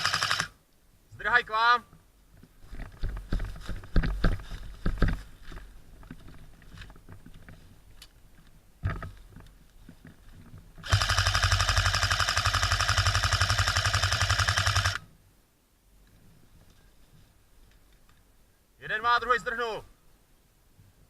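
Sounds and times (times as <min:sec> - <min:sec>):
airsoft gun full-auto burst: 0:00.0 - 0:00.6, 0:10.8 - 0:15.0
faint rustling: 0:01.9 - 0:10.8, 0:16.0 - 0:18.6.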